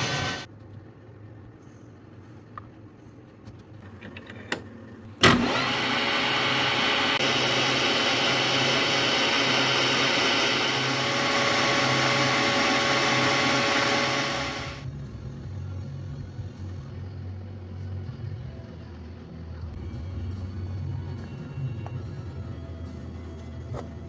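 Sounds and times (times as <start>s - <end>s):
machine hissing: 0.0s - 0.5s.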